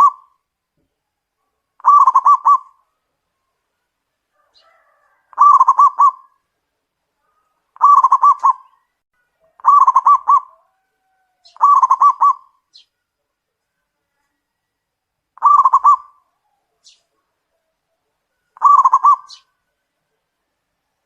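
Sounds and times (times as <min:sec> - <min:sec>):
dove cooing: 0:00.0 - 0:00.3, 0:01.8 - 0:02.9, 0:04.4 - 0:06.4, 0:07.8 - 0:08.8, 0:09.5 - 0:12.6, 0:15.4 - 0:16.9, 0:18.5 - 0:19.5.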